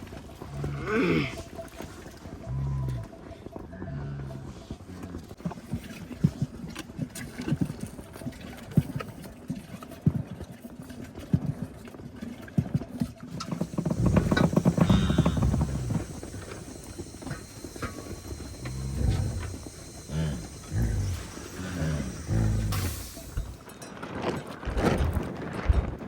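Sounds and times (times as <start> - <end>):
knocks and clatter: 13.2 - 20.6, 22.2 - 26.0
loud low animal call: 13.6 - 23.6.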